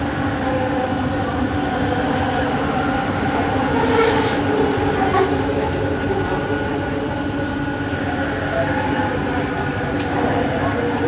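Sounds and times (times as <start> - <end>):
metro train motor hum: 0.0 - 11.0
train running noise: 0.0 - 11.0
high wheel squeal: 3.8 - 4.8.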